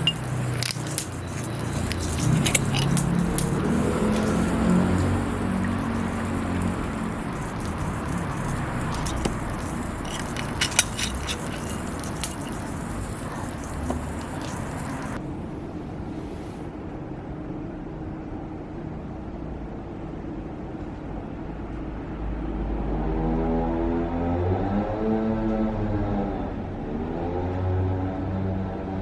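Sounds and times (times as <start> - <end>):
fire crackling pops: 0.0 - 15.2
wood fire burning: 0.0 - 15.2.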